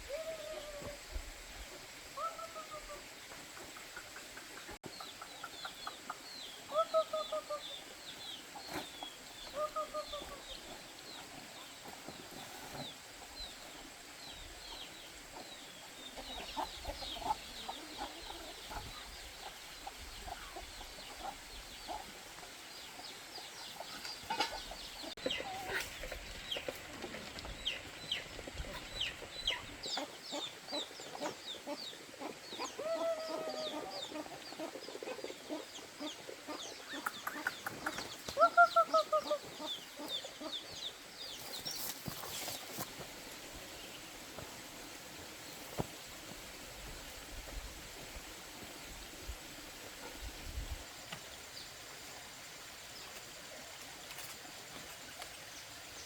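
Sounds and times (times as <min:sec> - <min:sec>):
chickens clucking: 0:02.2 - 0:13.0, 0:15.3 - 0:41.0.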